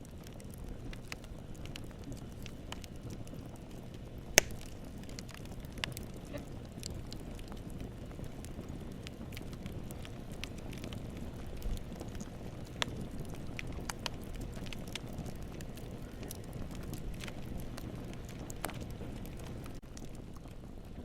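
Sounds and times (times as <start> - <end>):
campfire rumbling: 0.0 - 21.0
fire crackling: 0.0 - 21.0
sharp loud pop: 4.4 - 4.6.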